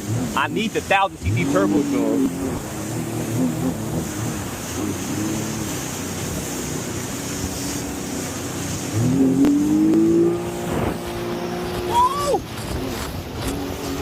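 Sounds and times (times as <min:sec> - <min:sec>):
jet ski engine running: 0:00.0 - 0:14.0
wind on microphone: 0:01.3 - 0:14.0.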